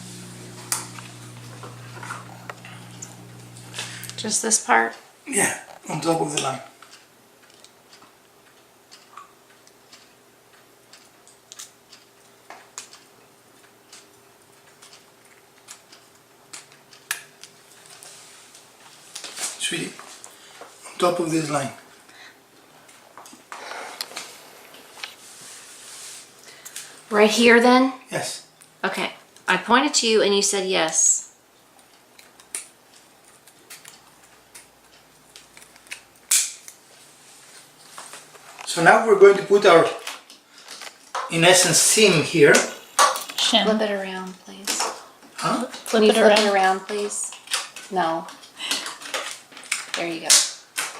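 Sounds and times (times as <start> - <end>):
steady low hum: 0.0 - 6.0
scissors snipping plastic card: 35.3 - 36.8.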